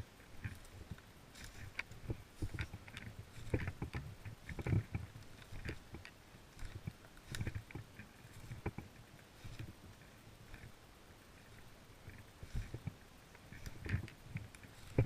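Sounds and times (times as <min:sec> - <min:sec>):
footsteps on ground cover: 0:00.0 - 0:08.8
gear rustling: 0:00.0 - 0:15.0
twigs and dry leaves crackling: 0:00.0 - 0:15.0.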